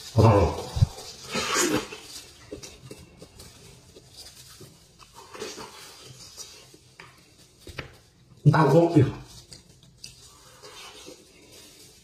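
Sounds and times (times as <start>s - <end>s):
chewing and sucking mouth sounds: 4.9s - 6.9s.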